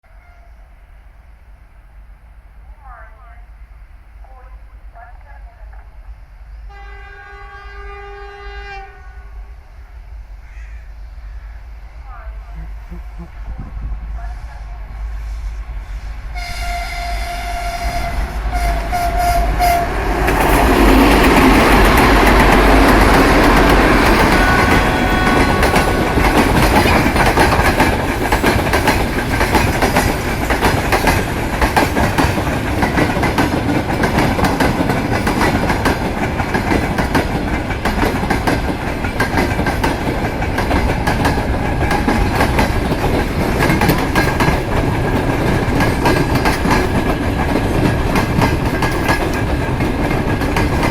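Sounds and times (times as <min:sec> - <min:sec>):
diesel locomotive engine: 0:00.2 - 0:50.9
locomotive horn: 0:06.7 - 0:09.4, 0:16.3 - 0:20.1, 0:24.1 - 0:26.5
train wheels clacking over rail joints: 0:19.6 - 0:50.9.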